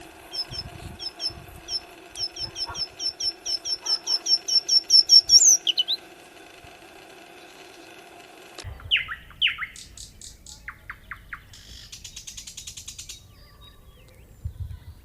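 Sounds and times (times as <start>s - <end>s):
songbird chirping: 0.4s - 6.0s, 8.7s - 15.0s.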